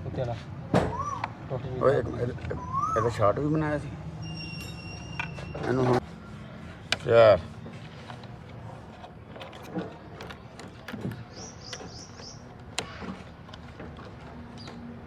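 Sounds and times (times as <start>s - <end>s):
high chirps: 4.2s - 5.6s.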